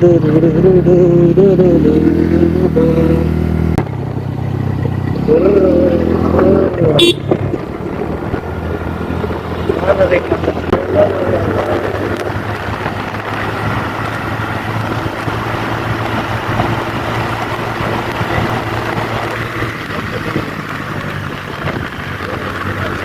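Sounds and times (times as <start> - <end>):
scooter engine running: 0.0 - 23.0
wind noise on microphone: 5.9 - 23.0.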